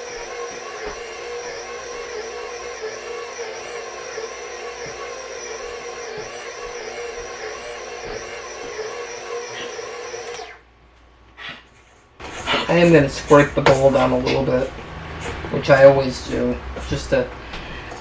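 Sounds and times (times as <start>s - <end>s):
electric mixer motor running: 0.0s - 10.6s.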